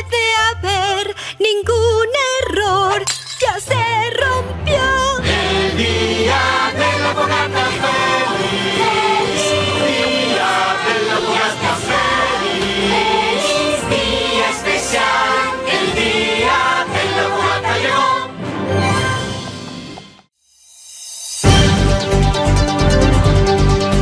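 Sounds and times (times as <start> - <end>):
orchestral backing: 4.4 - 20.1
choir singing: 5.1 - 19.1.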